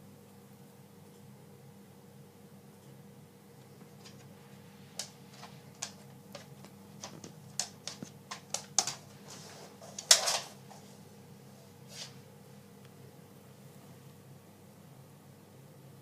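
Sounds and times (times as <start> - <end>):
animal clicks and puffs: 3.8 - 10.5.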